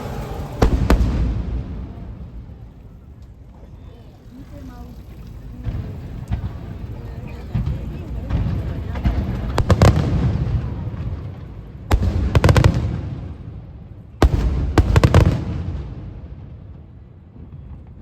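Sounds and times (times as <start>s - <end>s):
firework shells bursting: 0.0s - 3.4s
low echoing rumble: 0.0s - 12.4s
firework crackling: 0.0s - 18.0s.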